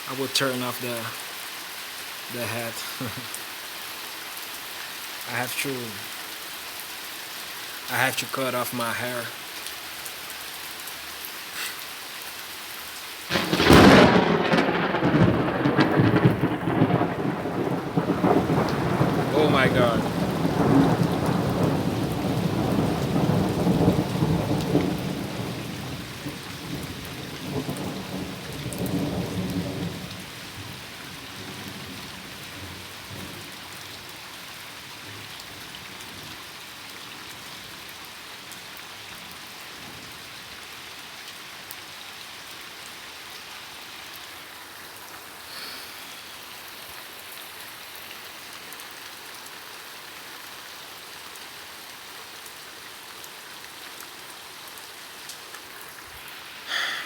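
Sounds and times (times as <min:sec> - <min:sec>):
heavy rain falling: 0:00.0 - 0:57.0
rumble of thunder: 0:13.3 - 0:30.2.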